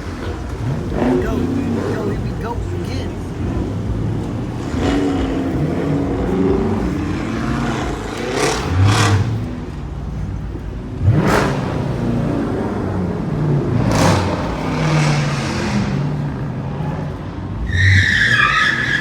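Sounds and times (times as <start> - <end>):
car exhaust revving: 0.0 - 19.0.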